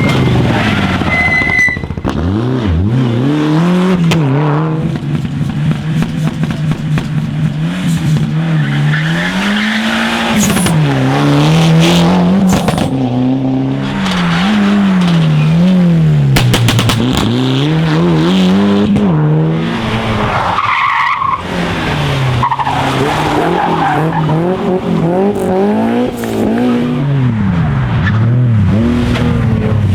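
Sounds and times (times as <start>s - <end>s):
rally car engine revving: 0.0s - 29.9s
tyres skidding: 0.0s - 29.9s
sharp cracks: 13.8s - 17.9s.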